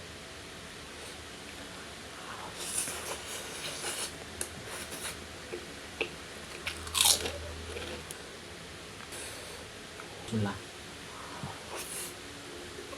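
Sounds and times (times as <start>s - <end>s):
fish eating crunching: 6.5s - 8.2s.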